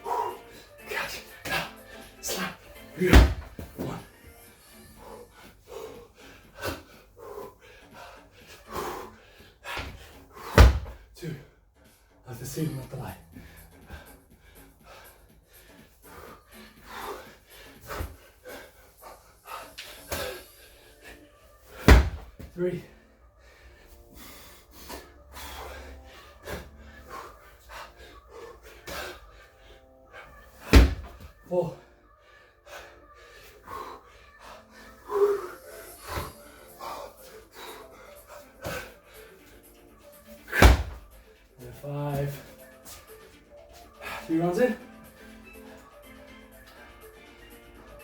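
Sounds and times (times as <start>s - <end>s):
man breathing hard and gasping: 0.0s - 11.6s, 13.2s - 48.0s
dull thumps on floor: 10.6s - 11.0s, 21.9s - 22.3s.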